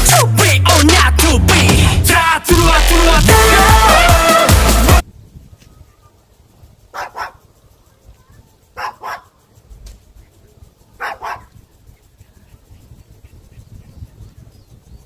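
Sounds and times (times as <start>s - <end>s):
small dog barking: 6.9s - 7.4s, 8.8s - 9.4s, 11.0s - 11.6s.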